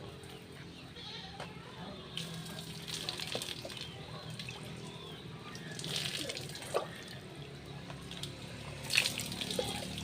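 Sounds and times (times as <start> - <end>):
water pouring and splashing: 2.2 - 4.8, 5.5 - 7.3, 8.0 - 10.0.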